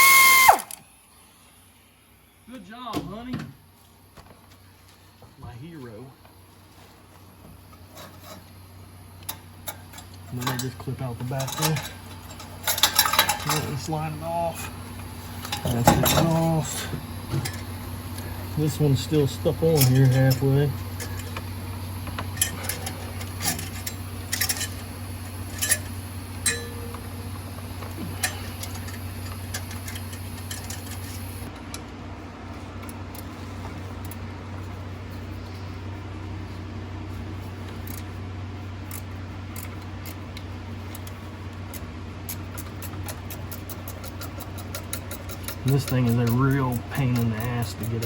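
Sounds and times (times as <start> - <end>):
steady low hum: 0.0 - 48.0
tools clinking on metal parts: 9.2 - 14.0, 15.4 - 16.6, 19.4 - 21.3, 22.3 - 24.8, 25.5 - 27.0, 28.0 - 31.5, 40.9 - 48.0.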